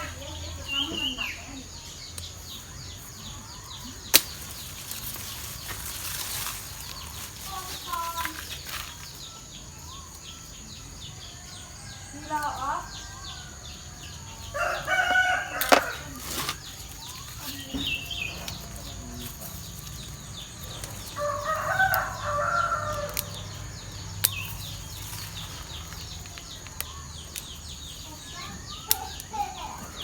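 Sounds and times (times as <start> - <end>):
rooster crowing: 11.6 - 16.3, 21.1 - 23.5.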